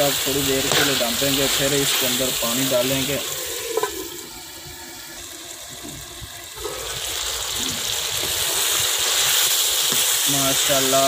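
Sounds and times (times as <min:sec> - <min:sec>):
food sizzling in a metal pot: 0:00.0 - 0:11.0
lid knocking: 0:03.7 - 0:04.0.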